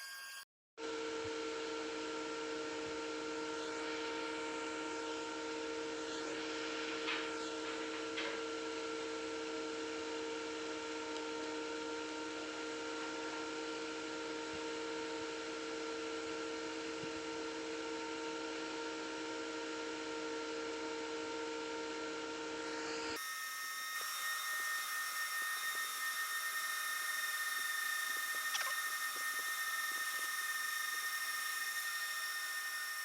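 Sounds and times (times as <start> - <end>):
small electric motor whining: 21.8 - 33.0
higher-pitched whine: 22.6 - 33.0.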